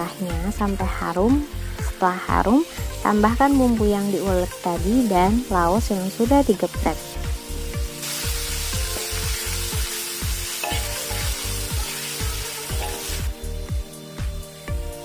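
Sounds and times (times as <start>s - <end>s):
background music with steady beat: 0.0s - 15.0s
spice paste sizzling in hot oil: 0.0s - 15.0s.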